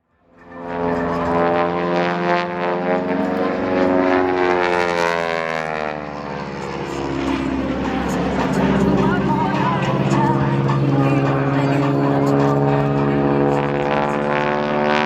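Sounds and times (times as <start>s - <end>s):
propeller airplane flying past: 0.0s - 15.0s.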